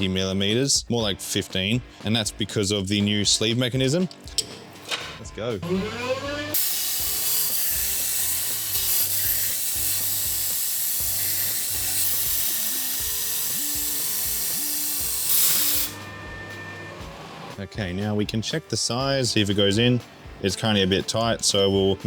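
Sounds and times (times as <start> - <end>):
background music with bass line: 0.0 - 22.0
lathe cutting hiss: 6.5 - 16.1.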